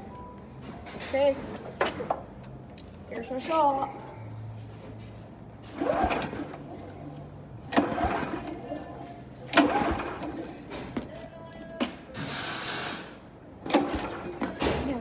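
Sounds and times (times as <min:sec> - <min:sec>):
pull-start rope yanked: 0:05.7 - 0:06.6, 0:07.7 - 0:08.5, 0:09.5 - 0:10.4.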